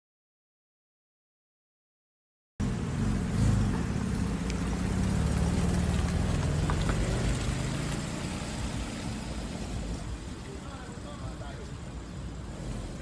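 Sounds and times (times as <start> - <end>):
car engine running: 2.6 - 13.0.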